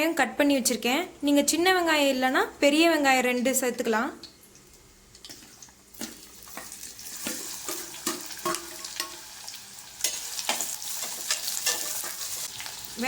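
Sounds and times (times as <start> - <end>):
shallots sizzling in hot oil: 5.3 - 13.0
spoon scraping metal pot: 10.0 - 12.5.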